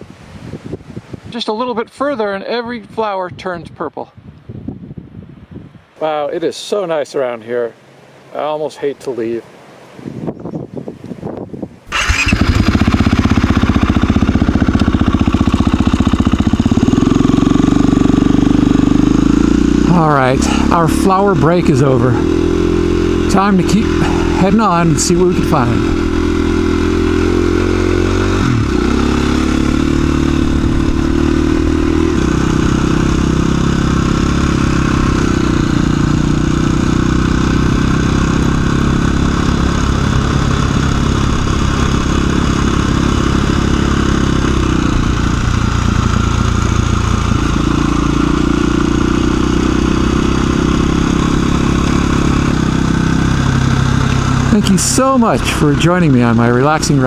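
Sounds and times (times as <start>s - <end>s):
motorcycle engine running: 11.9s - 57.0s.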